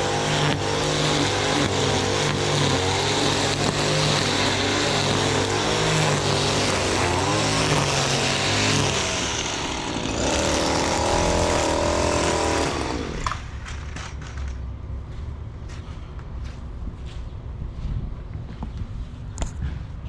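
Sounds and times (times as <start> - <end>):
string trimmer running: 0.0 - 14.6.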